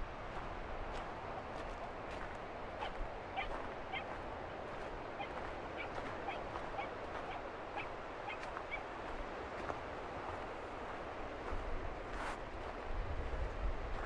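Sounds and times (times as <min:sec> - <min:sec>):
steady outdoor rushing noise: 0:00.0 - 0:14.0
birds calling: 0:02.8 - 0:08.9.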